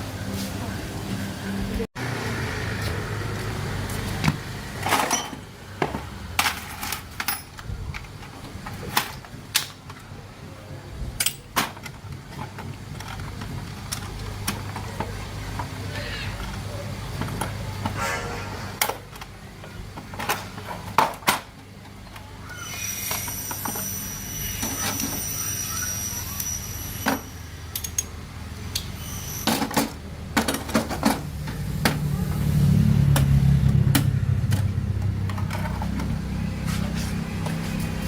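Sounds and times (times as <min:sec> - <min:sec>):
low rumble: 0:31.3 - 0:38.0.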